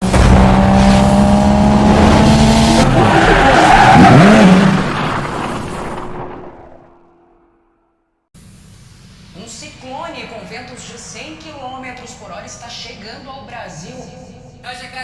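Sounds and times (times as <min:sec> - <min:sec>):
tyres skidding: 0:00.0 - 0:07.1
car engine: 0:00.0 - 0:07.7.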